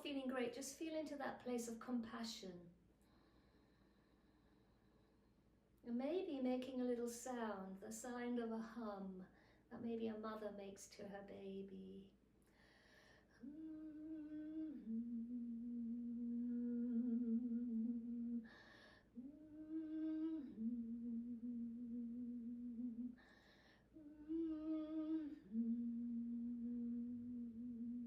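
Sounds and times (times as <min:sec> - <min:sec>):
woman breathing in: 0:12.4 - 0:13.4, 0:18.5 - 0:19.2, 0:23.2 - 0:23.9
woman humming softly: 0:13.4 - 0:23.3, 0:23.9 - 0:28.0.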